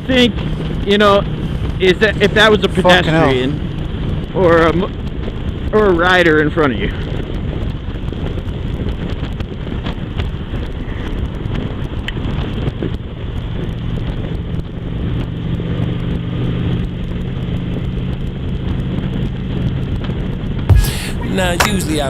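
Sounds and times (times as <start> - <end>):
motorcycle engine cruising: 0.0 - 4.4
wind noise on microphone: 0.0 - 20.7.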